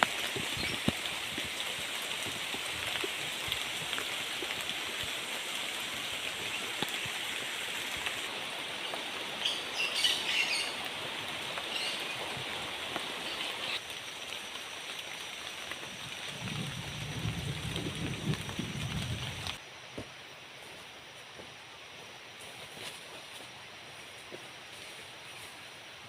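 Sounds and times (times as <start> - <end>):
rain pattering: 0.0 - 19.6.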